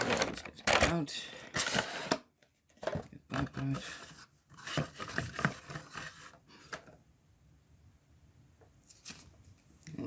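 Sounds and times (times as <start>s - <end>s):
packaging clicks and rustles: 0.0s - 7.0s.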